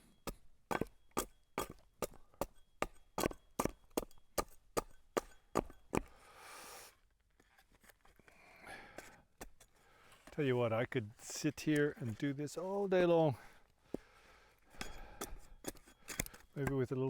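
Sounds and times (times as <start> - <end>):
chopping strikes on wood: 0.3 - 6.1.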